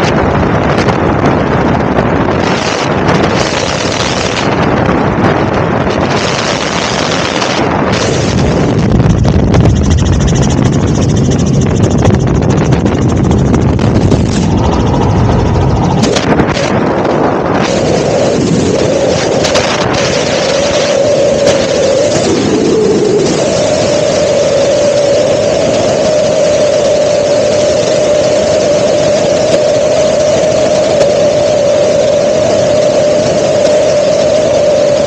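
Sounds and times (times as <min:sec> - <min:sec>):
helicopter engine and rotor: 0:00.0 - 0:35.0
wind buffeting microphone: 0:00.0 - 0:35.0.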